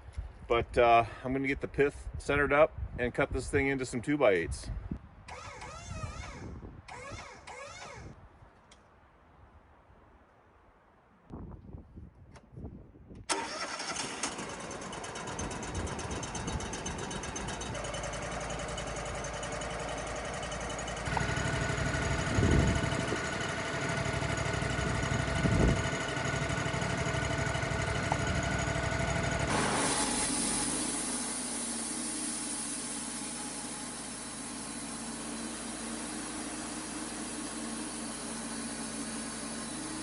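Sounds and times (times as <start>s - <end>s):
sawmill engine running: 13.3s - 40.0s
steady whine: 20.9s - 40.0s
hissing rush: 29.5s - 40.0s.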